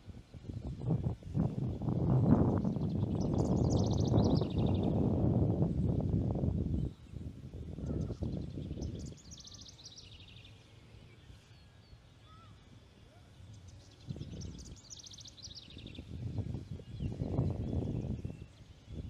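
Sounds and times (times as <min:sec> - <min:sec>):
wind noise: 0:00.0 - 0:09.3, 0:14.0 - 0:14.9, 0:15.7 - 0:19.0.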